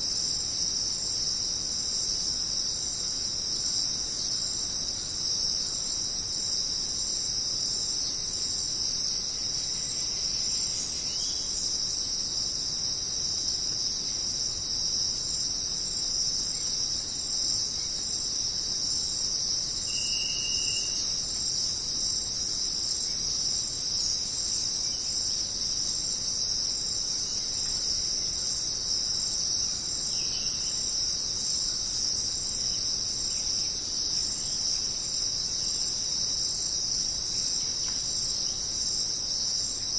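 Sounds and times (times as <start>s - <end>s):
jungle insects shrilling: 0.2s - 39.9s.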